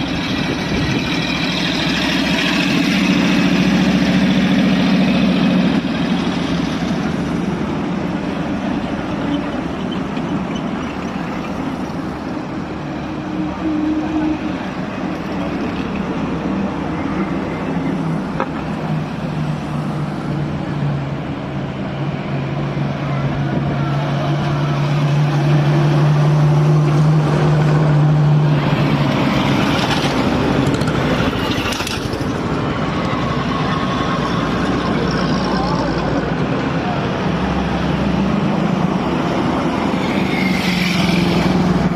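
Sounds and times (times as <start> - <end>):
road noise: 0.0 - 41.9
vehicle engines driving past: 0.0 - 41.9.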